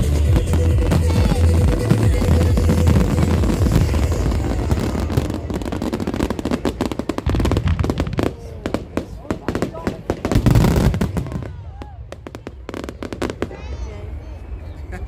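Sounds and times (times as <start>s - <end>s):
fireworks rumbling bursts: 0.0s - 14.6s.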